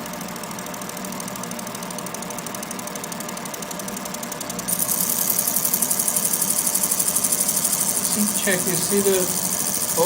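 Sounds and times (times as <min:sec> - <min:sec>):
steady machine hum: 0:00.0 - 0:10.0
high-pitched pulsing laser buzz: 0:04.7 - 0:10.0.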